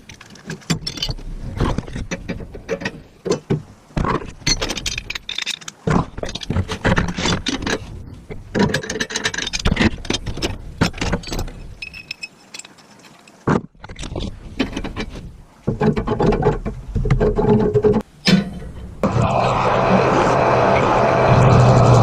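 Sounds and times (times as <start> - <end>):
scrapes and clinks on metal: 11.1 - 13.4.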